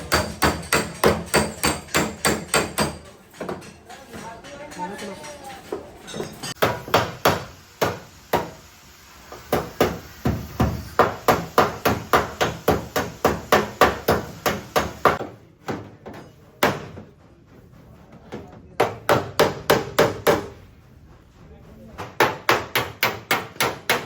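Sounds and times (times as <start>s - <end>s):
hammer striking sheet metal: 0.0s - 3.8s, 6.1s - 8.6s, 9.4s - 15.2s.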